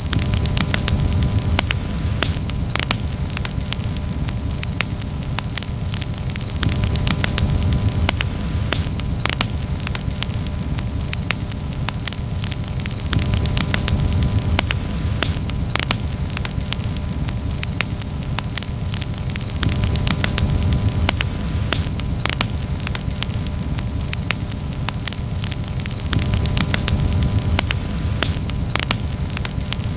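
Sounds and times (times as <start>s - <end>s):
campfire crackling and popping: 0.0s - 29.9s.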